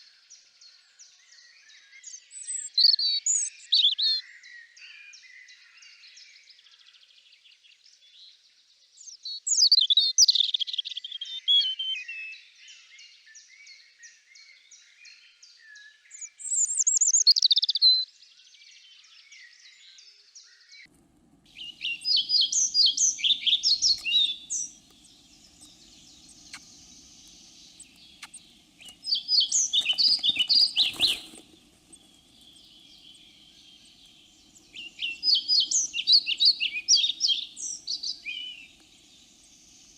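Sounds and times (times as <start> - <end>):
faint bird chirping: 0.0 - 39.9
loud bird song phrase: 0.0 - 39.9
faint low hum: 20.9 - 39.9.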